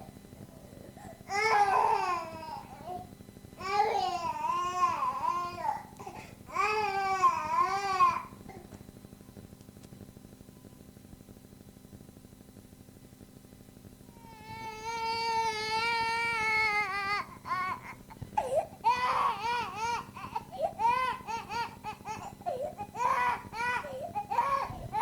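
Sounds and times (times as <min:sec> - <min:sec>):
infant crying: 0:01.3 - 0:03.0, 0:03.6 - 0:08.3, 0:14.2 - 0:25.0.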